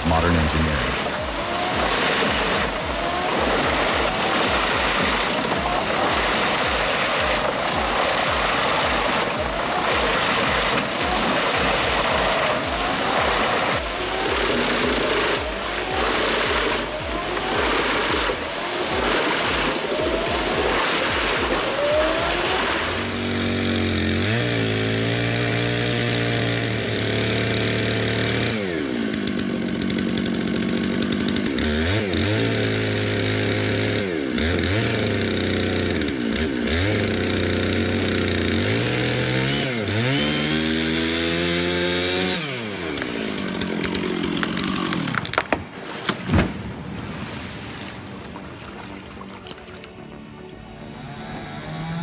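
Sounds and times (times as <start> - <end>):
sharp snaps: 0.0 - 24.6
chainsaw engine revving: 0.0 - 46.7, 50.6 - 52.0.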